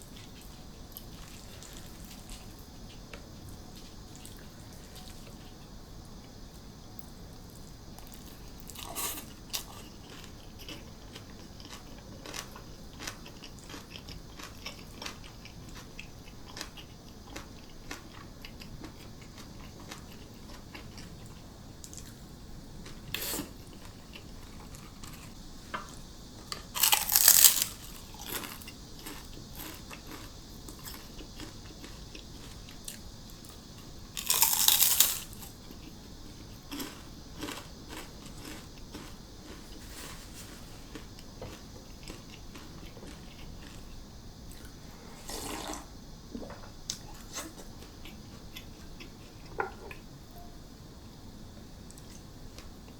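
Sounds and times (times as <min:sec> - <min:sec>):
faint cicada drone: 0:00.0 - 0:52.9
chewing clicks: 0:09.5 - 0:21.1
crisp crunches: 0:26.8 - 0:30.2, 0:34.2 - 0:35.4.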